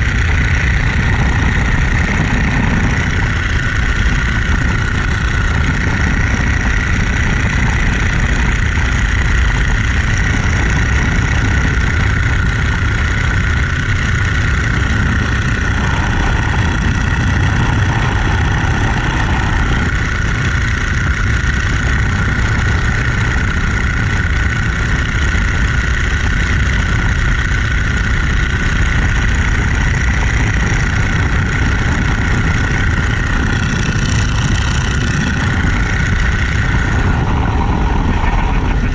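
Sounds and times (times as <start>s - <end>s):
biplane radial engine running: 0.0s - 38.9s
propeller and wind noise: 0.0s - 38.9s.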